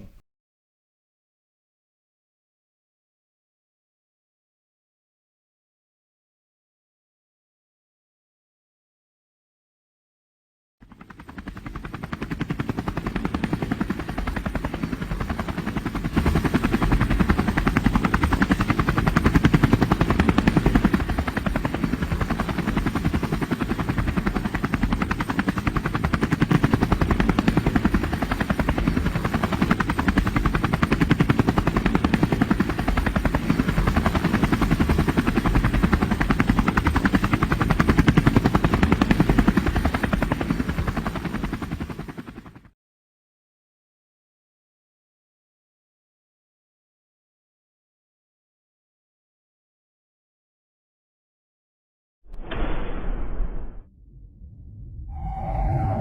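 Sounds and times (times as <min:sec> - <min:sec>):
helicopter rotors chopping: 0:11.0 - 0:42.4.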